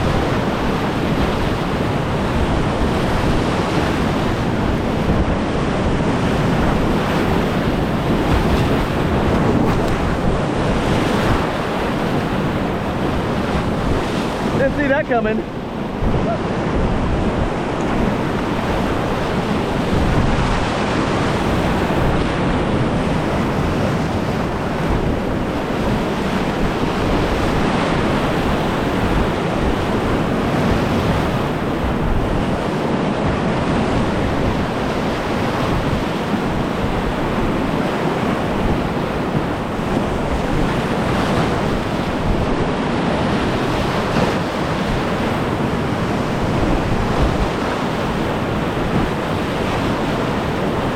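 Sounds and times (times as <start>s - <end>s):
whitewater rapids roaring: 0.0s - 33.2s
wind buffeting microphone: 0.0s - 50.9s.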